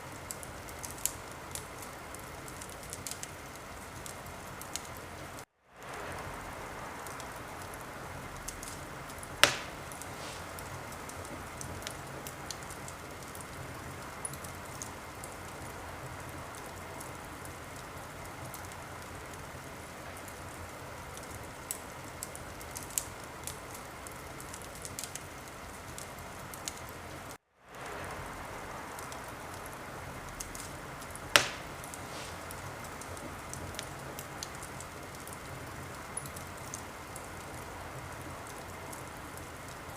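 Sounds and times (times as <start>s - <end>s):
wood fire crackling: 0.0s - 39.9s
loud sharp fire pops: 8.4s - 13.5s, 30.4s - 35.4s.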